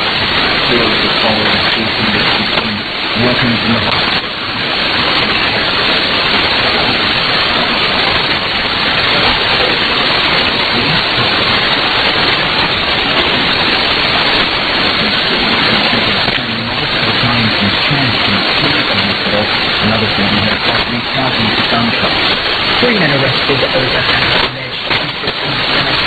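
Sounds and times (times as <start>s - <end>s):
radio static and hiss: 0.0s - 26.0s
faint newsreader voice: 0.6s - 5.9s, 9.0s - 11.8s, 14.6s - 26.0s.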